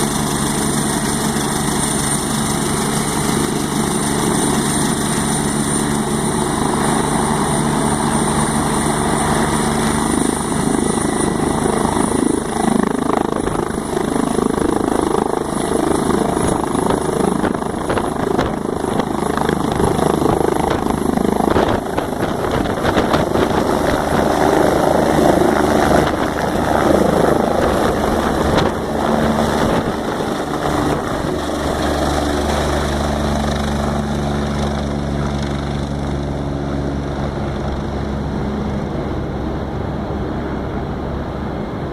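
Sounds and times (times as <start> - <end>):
helicopter rotor and engine: 0.0 - 41.9.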